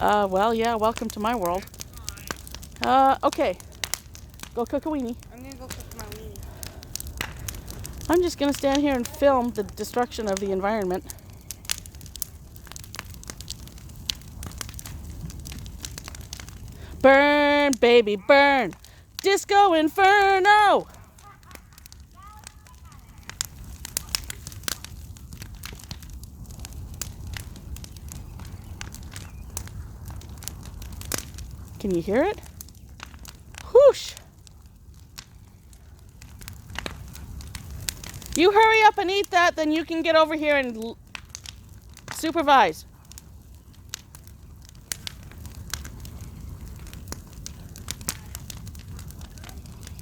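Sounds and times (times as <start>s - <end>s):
fire crackling and popping: 0.0s - 50.0s
flames whooshing: 0.0s - 50.0s.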